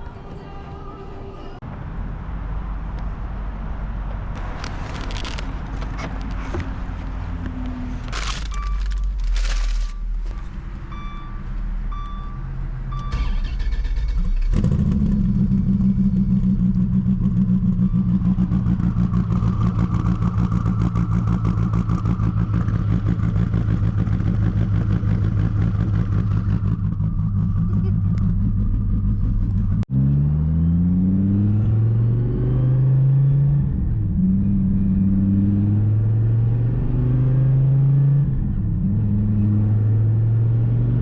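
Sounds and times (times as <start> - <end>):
car engine starting and idling: 4.0 - 30.1
short electronic beeps: 9.8 - 13.6.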